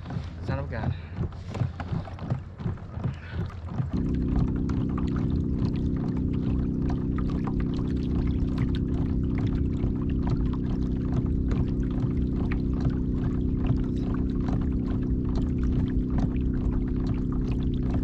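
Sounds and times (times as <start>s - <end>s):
steady low tonal hum: 0.0s - 18.0s
water splashing and trickling: 0.0s - 18.0s.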